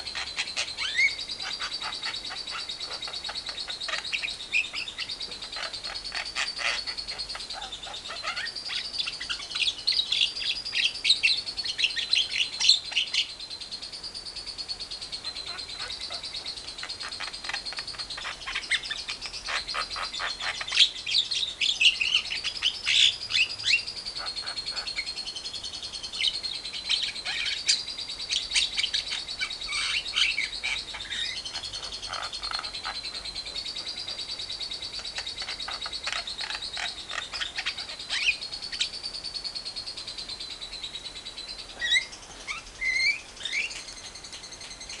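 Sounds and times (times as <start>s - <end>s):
myna chattering harsh calls: 0.0s - 9.6s, 29.7s - 34.2s, 35.2s - 38.5s
bird rising chirps: 19.8s - 45.0s.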